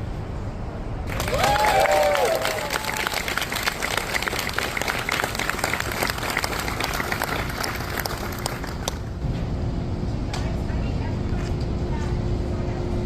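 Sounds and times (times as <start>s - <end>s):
crowd applauding: 1.1s - 9.1s.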